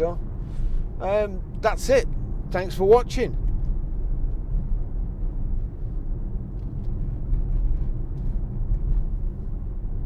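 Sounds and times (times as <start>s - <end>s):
road and engine rumble: 0.0s - 10.0s.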